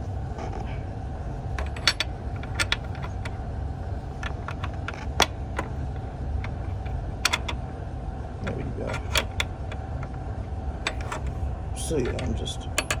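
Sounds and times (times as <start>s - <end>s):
steady low hum: 0.0s - 13.0s
wrench clicking on metal bolt: 1.6s - 3.3s, 4.2s - 7.6s, 8.4s - 10.2s, 10.8s - 11.4s, 12.0s - 13.0s.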